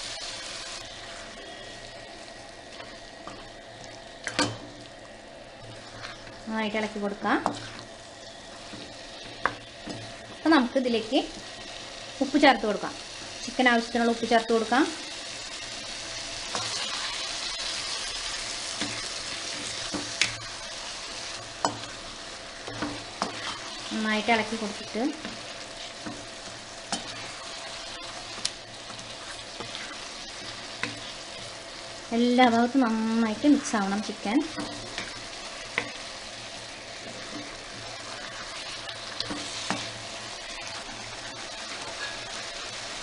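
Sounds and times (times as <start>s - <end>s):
chicken sizzling in a pan: 0.0s - 43.0s
spoon scraping a pan: 5.6s - 10.2s, 16.4s - 17.8s, 22.6s - 31.5s, 36.9s - 42.8s.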